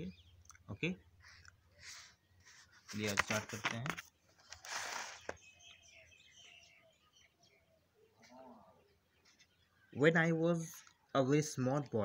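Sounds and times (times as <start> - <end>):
faint birds chirping: 0.0 - 12.0
hissing rustle: 4.5 - 5.4.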